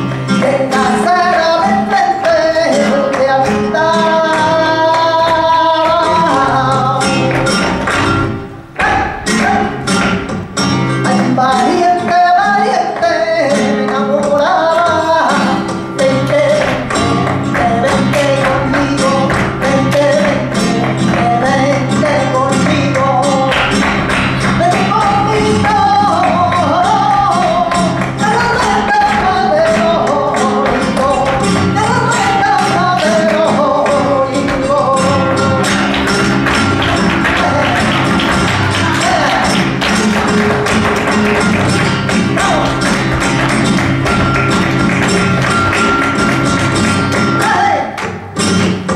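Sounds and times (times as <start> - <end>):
guitar accompaniment: 0.0 - 48.9
fast sharp percussive taps: 16.2 - 47.4.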